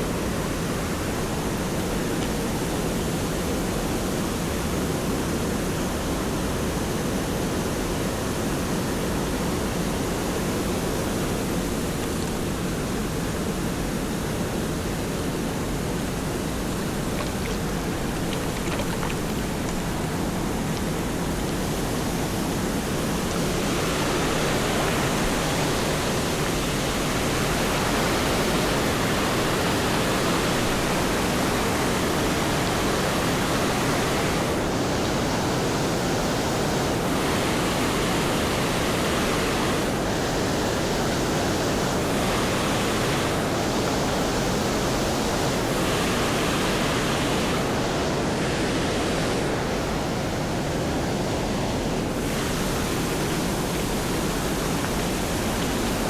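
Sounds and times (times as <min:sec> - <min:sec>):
waterfall rushing: 0:15.4 - 0:34.7, 0:41.2 - 0:56.0.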